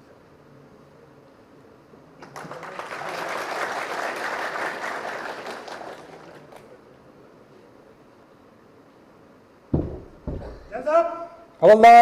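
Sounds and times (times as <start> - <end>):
audience applauding: 2.2 - 6.7.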